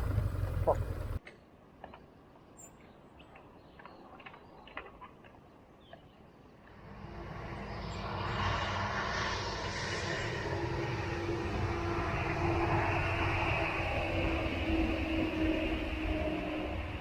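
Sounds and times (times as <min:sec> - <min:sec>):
motorcycle riding: 0:00.0 - 0:01.2
wind and road noise: 0:00.0 - 0:17.0.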